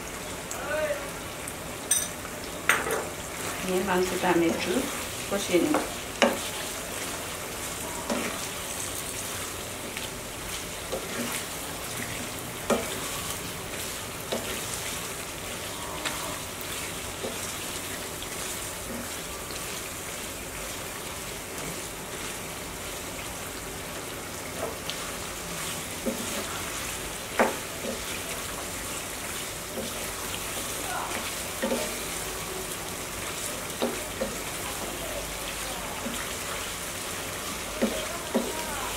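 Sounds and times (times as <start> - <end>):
chicken sizzling in oil: 0.0 - 38.9
wooden spatula scraping pan: 7.7 - 8.6.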